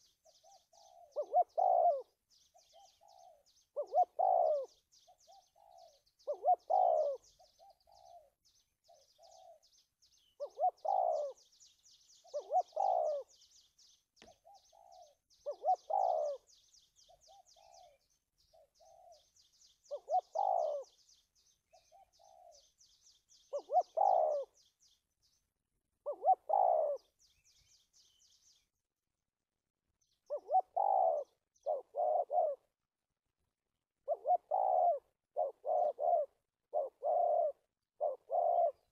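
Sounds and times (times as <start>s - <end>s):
dove cooing: 0.0s - 24.7s, 26.0s - 27.4s, 30.2s - 32.8s, 34.0s - 38.9s.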